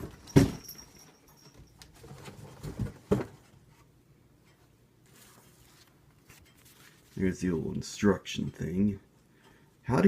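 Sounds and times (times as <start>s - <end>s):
cardboard and paper rustling: 5.1s - 7.3s.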